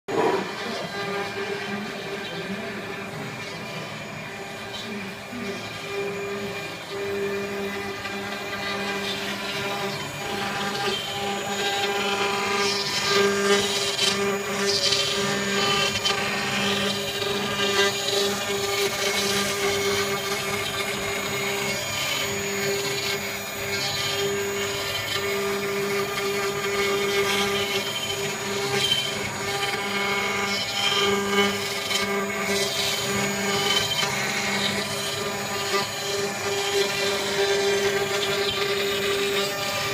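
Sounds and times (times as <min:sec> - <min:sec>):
rough cutting noise: 0:00.0 - 0:39.9
router spindle whining: 0:00.0 - 0:39.9.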